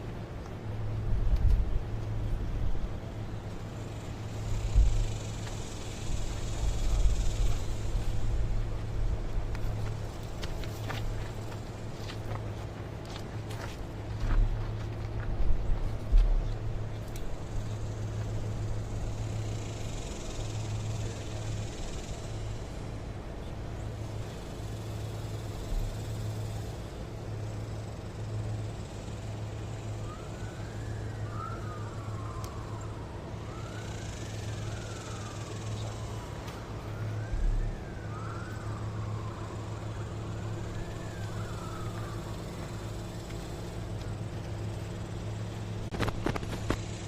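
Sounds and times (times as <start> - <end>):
low vehicle hum: 0.0 - 47.0
siren wailing: 29.4 - 46.4.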